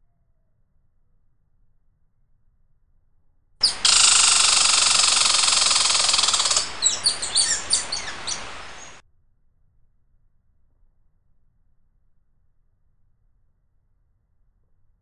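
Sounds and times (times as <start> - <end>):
songbird fast high trill: 3.6 - 9.0
songbird quick high chirps: 3.6 - 9.0.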